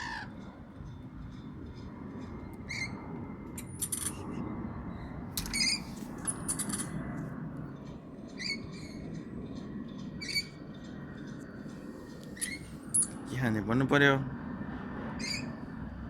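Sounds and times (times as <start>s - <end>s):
parrots shrill calls: 0.0s - 0.3s.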